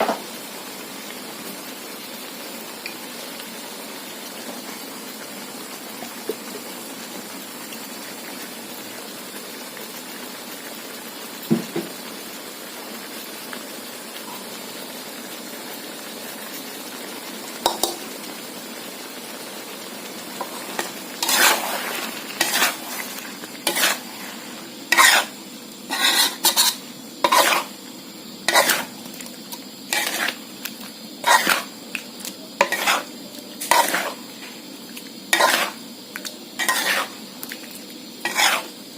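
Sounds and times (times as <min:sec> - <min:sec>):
food sizzling in a pan: 0:00.0 - 0:38.9
spatula scraping a pan: 0:20.4 - 0:27.8, 0:28.5 - 0:30.4, 0:31.2 - 0:31.7, 0:32.6 - 0:34.6, 0:35.3 - 0:35.8, 0:36.6 - 0:37.2, 0:38.2 - 0:38.8.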